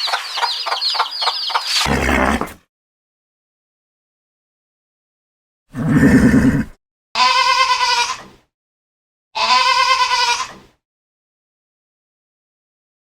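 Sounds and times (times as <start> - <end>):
goat bleating: 7.2 - 8.3, 9.4 - 10.6.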